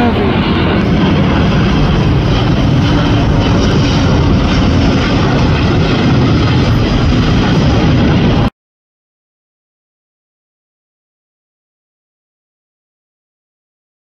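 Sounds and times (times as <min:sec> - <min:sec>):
jet airliner engines at takeoff: 0:00.0 - 0:08.5.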